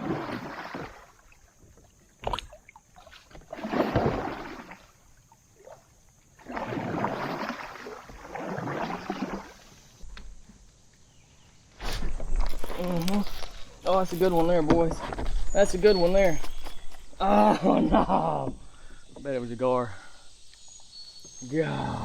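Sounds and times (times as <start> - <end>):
paddle swishing through water: 0.0 - 10.7, 11.7 - 17.3.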